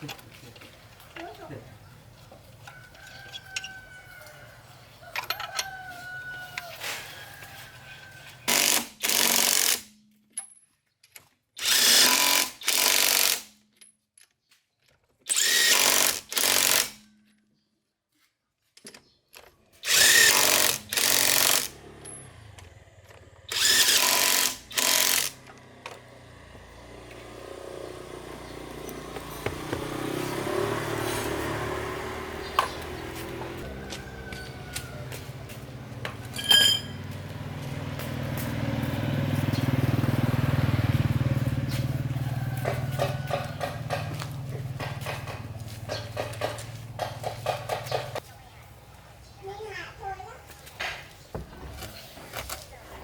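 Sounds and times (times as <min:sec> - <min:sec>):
pneumatic power tool bursts: 0:08.4 - 0:09.9, 0:11.6 - 0:13.6, 0:15.3 - 0:17.0, 0:19.8 - 0:21.8, 0:23.5 - 0:25.6
steady machine noise: 0:23.5 - 0:26.0.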